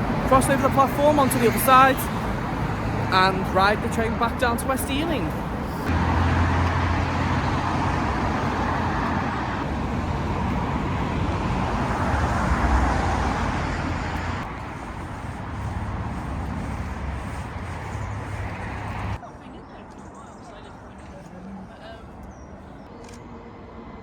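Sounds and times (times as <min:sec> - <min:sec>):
passing vehicles rushing: 0:00.0 - 0:19.2
deep traffic rumble: 0:00.0 - 0:19.3.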